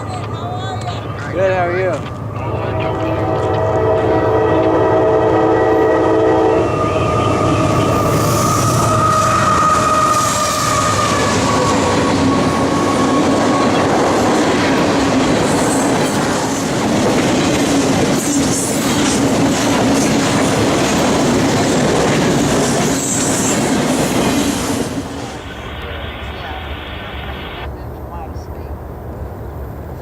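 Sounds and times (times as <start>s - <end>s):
train wheels clattering on rails: 0.0s - 4.8s, 7.7s - 25.2s
train horn: 1.4s - 14.1s.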